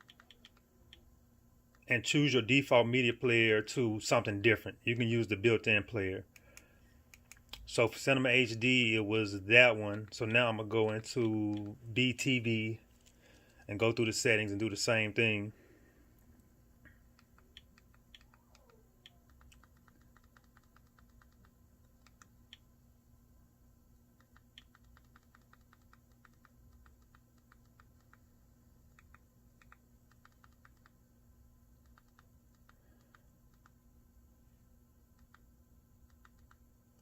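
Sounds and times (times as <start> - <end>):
remote control clicking: 0.0 - 1.0, 10.9 - 11.8, 17.2 - 22.6
low steady hum: 0.0 - 37.0.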